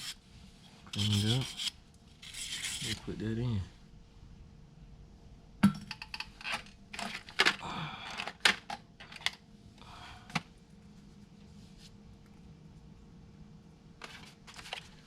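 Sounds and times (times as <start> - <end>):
tools and parts clattering: 5.6 - 9.4.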